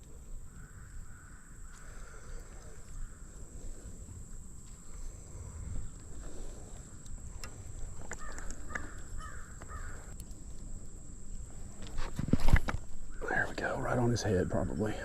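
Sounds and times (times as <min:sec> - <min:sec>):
bird harsh calls: 0:08.2 - 0:10.1.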